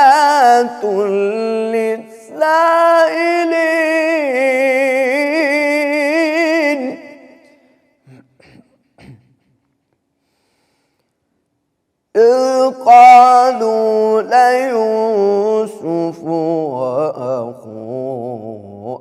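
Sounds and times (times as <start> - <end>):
man reciting melodically: 0.0 - 8.4, 12.1 - 19.0.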